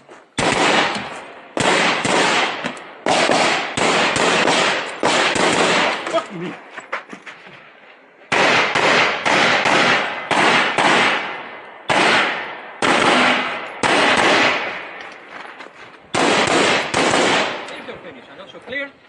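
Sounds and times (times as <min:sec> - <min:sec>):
rifle shots with echo: 0:00.4 - 0:06.2, 0:08.3 - 0:15.1, 0:16.1 - 0:18.0.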